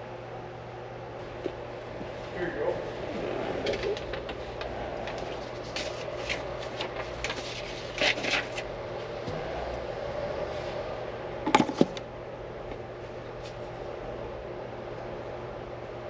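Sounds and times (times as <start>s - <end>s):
steady hum: 0.0s - 16.0s
paper rustling: 2.8s - 8.7s.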